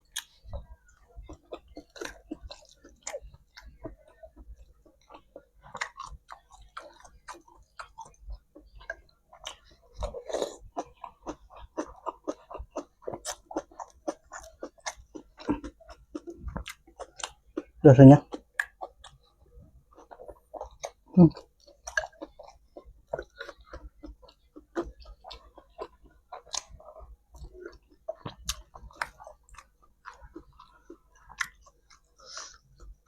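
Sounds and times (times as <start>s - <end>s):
person chewing and eating: 0.0s - 33.0s.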